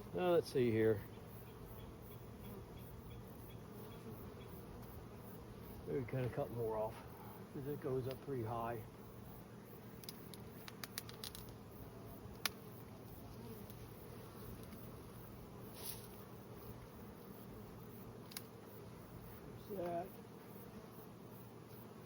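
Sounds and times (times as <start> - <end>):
bee swarm buzzing: 0.0 - 22.0.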